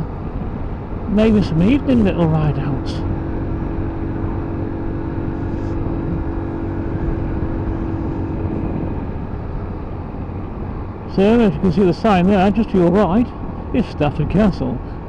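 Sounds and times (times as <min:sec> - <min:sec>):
motorcycle engine running: 0:00.0 - 0:15.0
steady engine hum: 0:00.0 - 0:15.0
wind and road noise: 0:00.0 - 0:15.0.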